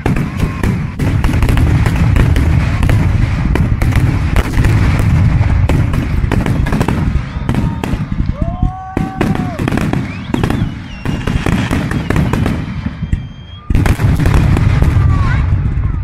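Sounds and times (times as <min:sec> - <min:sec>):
fireworks booming: 0:00.0 - 0:16.0
sharp fireworks cracks: 0:00.0 - 0:16.0.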